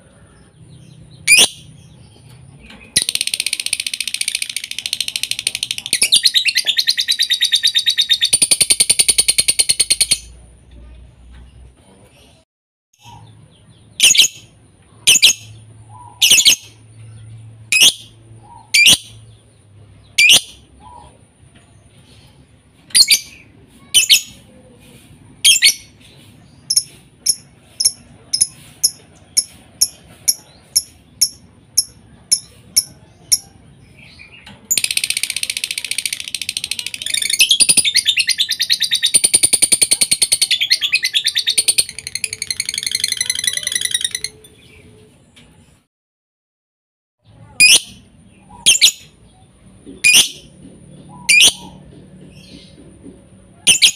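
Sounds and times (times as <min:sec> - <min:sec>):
lovebird chirps: 0:00.9 - 0:02.0, 0:13.0 - 0:19.4, 0:20.0 - 0:21.1, 0:22.1 - 0:24.5, 0:25.4 - 0:45.1, 0:47.5 - 0:49.4, 0:50.0 - 0:50.5, 0:51.1 - 0:51.8, 0:53.7 - 0:53.9
high chattering trill: 0:02.9 - 0:10.4, 0:22.8 - 0:24.6, 0:26.6 - 0:33.6.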